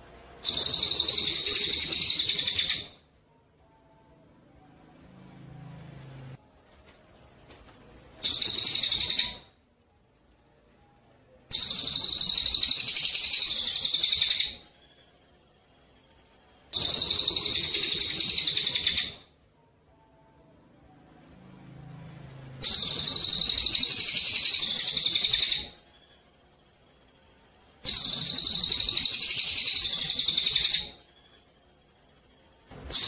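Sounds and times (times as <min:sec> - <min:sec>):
songbird high-pitched trills: 0:00.4 - 0:03.1, 0:06.4 - 0:09.6, 0:10.6 - 0:19.4, 0:22.6 - 0:33.0.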